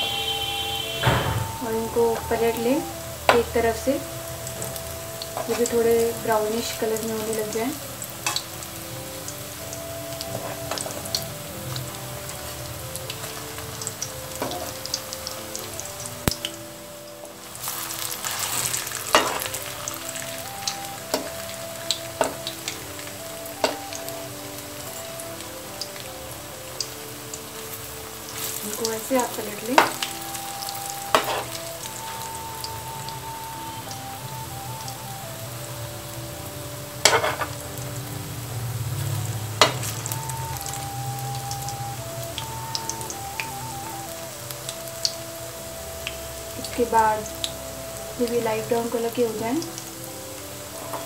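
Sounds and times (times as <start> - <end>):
food sizzling in hot oil: 0.0 - 51.0
simple background melody: 0.0 - 51.0
metal utensil knocking on pan: 37.1 - 37.5.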